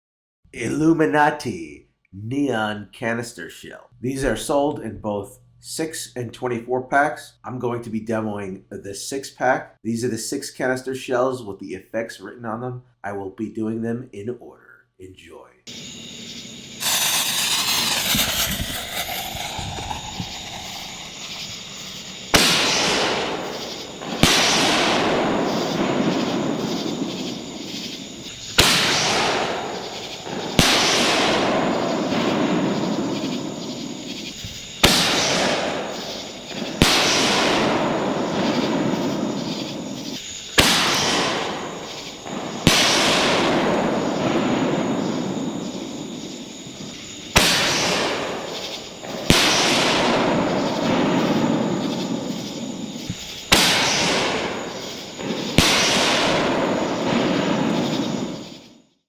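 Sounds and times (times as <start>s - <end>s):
rushing noise after burst: 15.7s - 36.6s
firework shell burst: 15.7s - 58.7s
firework shell launch thump: 16.8s - 33.5s.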